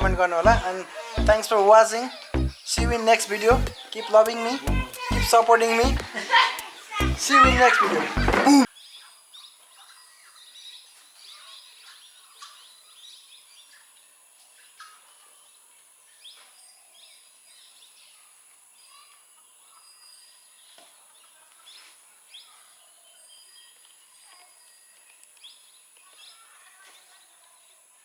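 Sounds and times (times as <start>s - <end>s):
birds chirping: 0.0s - 8.7s.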